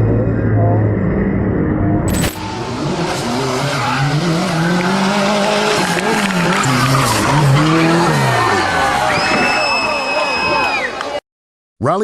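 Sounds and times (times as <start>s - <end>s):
rally car engine revving: 2.1s - 9.4s.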